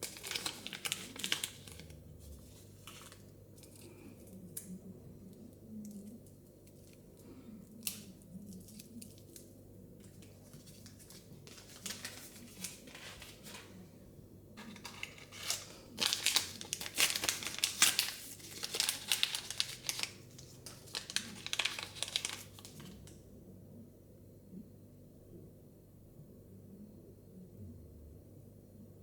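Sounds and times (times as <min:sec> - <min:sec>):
plastic wrapping crinkling and tearing: 0:00.0 - 0:04.8, 0:07.7 - 0:13.8, 0:14.6 - 0:23.2.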